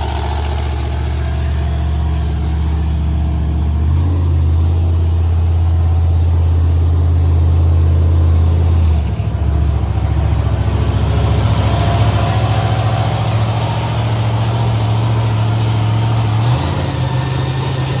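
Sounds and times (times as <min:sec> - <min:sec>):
large vehicle engine idling: 0:00.0 - 0:18.0.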